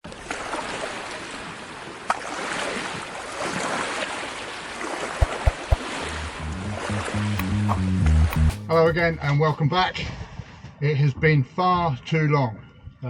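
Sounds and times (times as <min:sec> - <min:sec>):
water lapping around a boat: 0:00.1 - 0:04.8
sharp tap: 0:05.2 - 0:05.8, 0:07.4 - 0:09.5.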